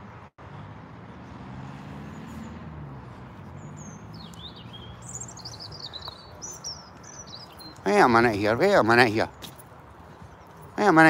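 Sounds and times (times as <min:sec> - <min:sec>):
small bird chirping: 0:03.4 - 0:09.4.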